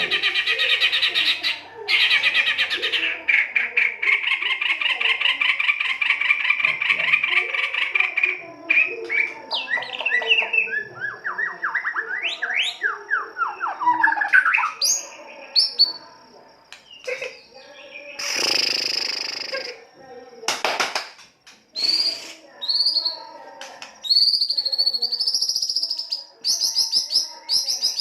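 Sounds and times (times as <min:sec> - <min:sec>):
songbird singing buzzy whistles: 0:21.8 - 0:23.1.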